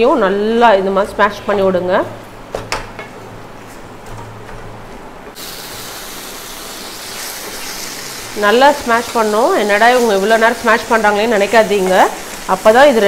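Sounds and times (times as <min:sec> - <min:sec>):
food frying in oil: 0:05.4 - 0:13.0
loud sizzling hiss: 0:05.4 - 0:13.0.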